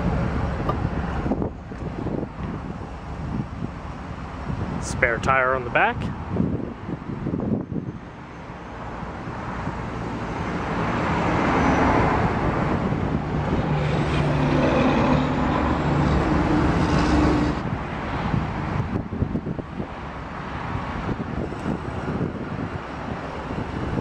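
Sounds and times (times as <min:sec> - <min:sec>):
road vehicle passing: 0:06.0 - 0:24.0.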